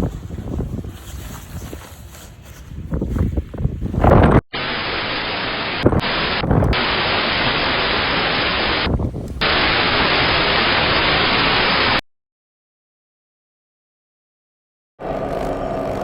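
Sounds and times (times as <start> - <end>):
wind buffeting microphone: 0.0 - 4.4, 5.8 - 6.8, 8.8 - 9.4
static hiss: 4.6 - 12.0.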